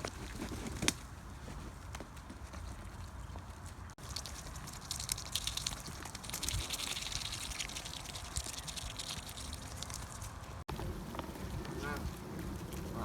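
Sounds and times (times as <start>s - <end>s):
geese bills pecking ground: 2.0s - 13.0s
wind rumble on microphone: 9.9s - 13.0s.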